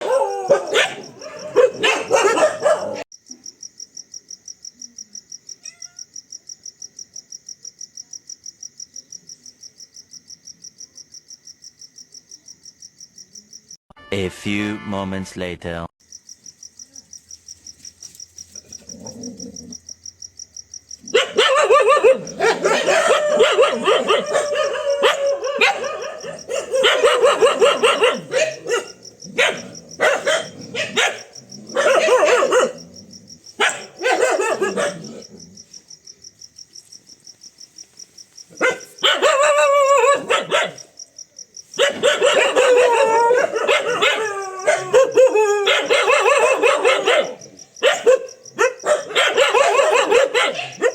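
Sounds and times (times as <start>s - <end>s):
dog barking loudly: 0.0s - 3.1s, 21.1s - 32.8s, 33.6s - 35.3s, 38.5s - 40.9s, 41.8s - 50.9s
crickets chirping: 0.0s - 13.8s, 16.0s - 50.9s.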